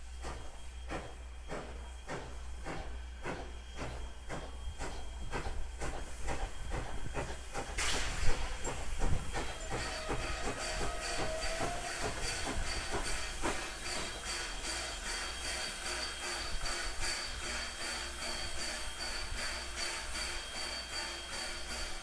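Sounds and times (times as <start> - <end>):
steam hissing: 0.0 - 22.0
steam train chuffing: 0.0 - 22.0
faint squeal: 9.4 - 22.0.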